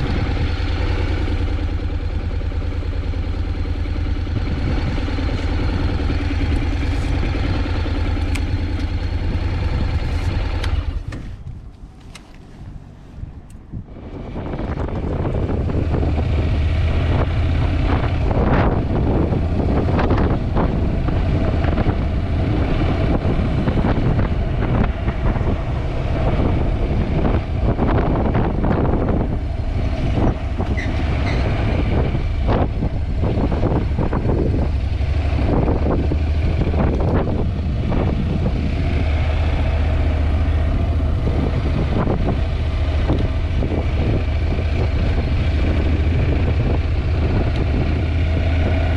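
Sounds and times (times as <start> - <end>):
wind buffeting microphone: 0.0 - 1.5, 3.0 - 11.7, 12.6 - 48.9
low steady rumble: 0.0 - 48.9.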